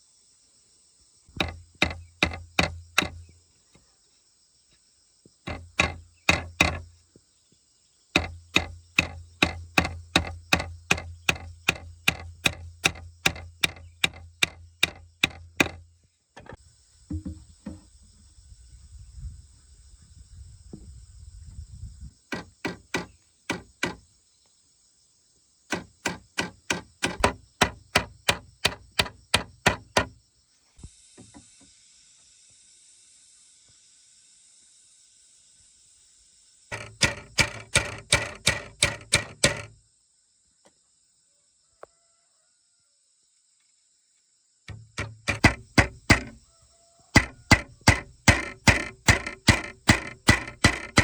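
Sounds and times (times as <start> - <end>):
hand tool striking wood: 1.3 - 3.3, 5.5 - 6.9, 8.2 - 17.9, 22.3 - 24.0, 25.7 - 30.2, 36.7 - 39.8, 44.7 - 46.4, 47.2 - 51.0.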